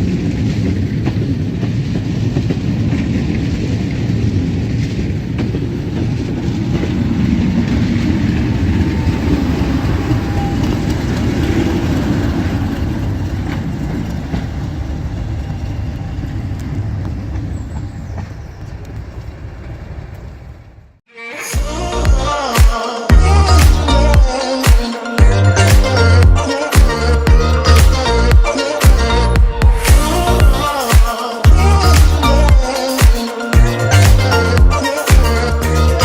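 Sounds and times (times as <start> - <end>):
wheels clattering on rails: 0.0 - 20.8
diesel train rumbling: 0.0 - 21.0, 23.1 - 36.0.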